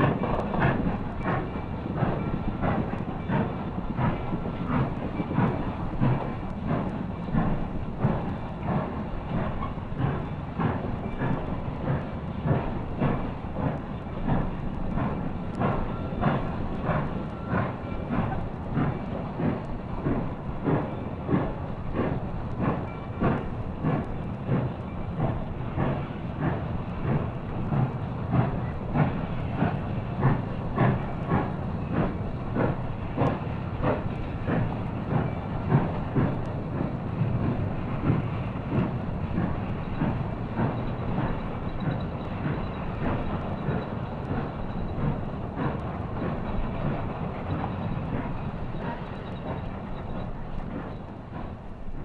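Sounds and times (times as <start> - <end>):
steam locomotive exhaust beating: 0.0 - 52.0.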